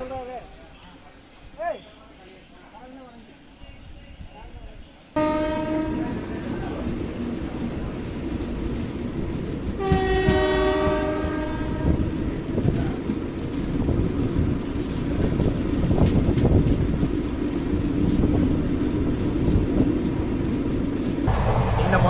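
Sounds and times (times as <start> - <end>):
train wheels rumbling on track: 3.9 - 22.0
locomotive horn: 5.2 - 6.5, 9.8 - 12.3.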